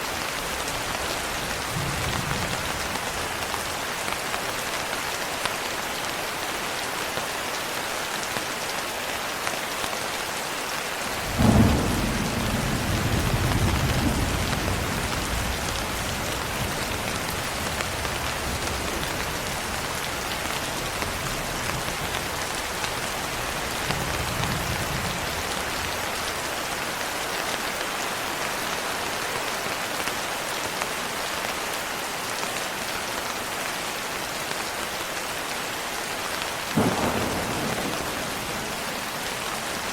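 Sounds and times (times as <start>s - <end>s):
rain on a window: 0.0s - 39.9s
thunder clap and rumble: 0.4s - 3.6s, 11.2s - 20.2s, 36.8s - 39.9s.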